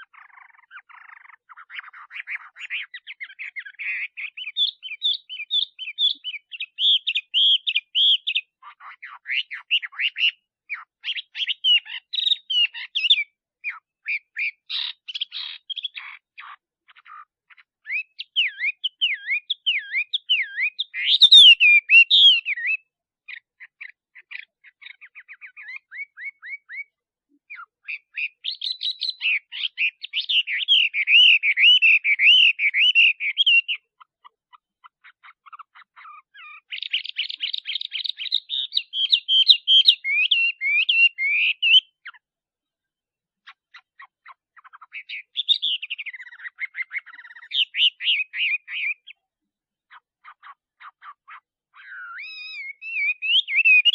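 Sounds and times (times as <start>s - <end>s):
bird singing whistled notes: 0.0s - 16.1s, 17.8s - 34.0s, 35.2s - 42.2s, 43.8s - 49.2s, 50.4s - 53.9s.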